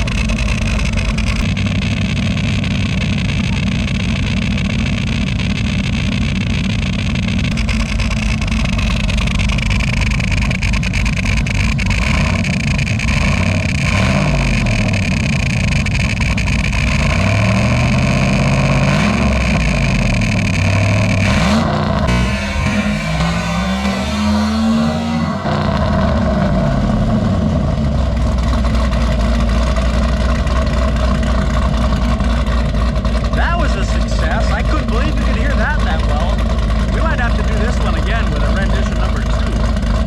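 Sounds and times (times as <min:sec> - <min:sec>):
car engine revving: 0:00.0 - 0:40.0
high tone from duck call: 0:20.8 - 0:26.2.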